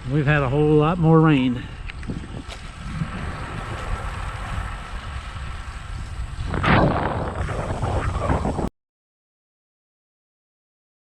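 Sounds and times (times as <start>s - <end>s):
wind buffeting microphone: 0.0s - 8.7s.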